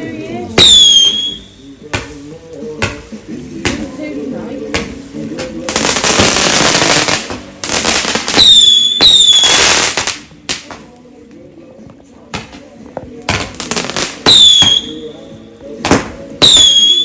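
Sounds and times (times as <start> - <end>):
fireworks crackling and bangs: 0.0 - 11.3, 12.2 - 17.0
firework whistles: 0.6 - 1.7, 8.1 - 10.0, 14.2 - 15.2, 16.4 - 17.0
scattered firework pops: 0.6 - 4.0, 4.7 - 11.0, 12.3 - 15.1, 15.8 - 17.0.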